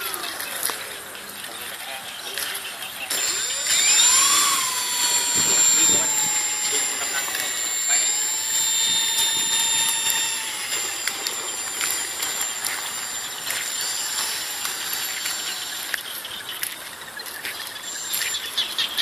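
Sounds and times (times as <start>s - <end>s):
model plane propellers whining: 3.1s - 16.5s, 17.7s - 19.0s.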